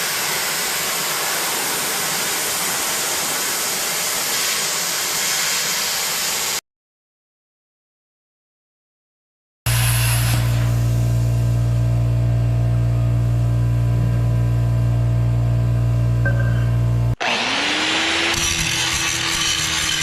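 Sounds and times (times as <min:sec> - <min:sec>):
metalworking power tool humming: 0:00.0 - 0:06.6, 0:09.7 - 0:20.0
tool spinning up to a whine: 0:16.3 - 0:20.0.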